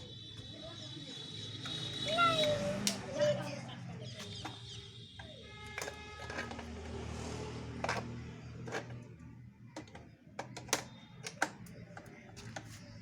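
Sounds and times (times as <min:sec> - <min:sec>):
sharp clicks and knocks: 0:09.7 - 0:12.8.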